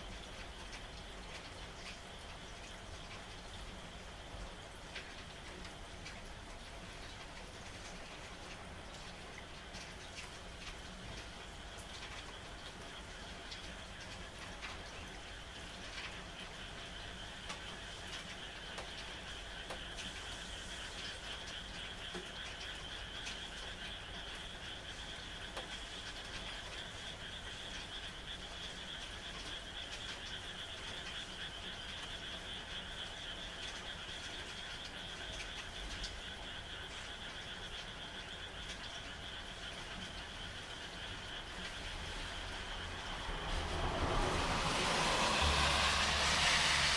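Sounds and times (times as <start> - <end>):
raindrops ticking: 0.0 - 46.8
frogs trilling: 11.4 - 46.9.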